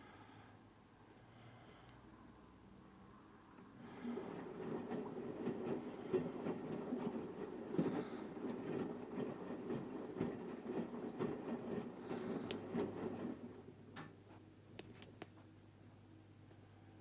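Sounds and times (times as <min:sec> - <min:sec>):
laundry tumbling and sloshing: 0:03.7 - 0:14.4.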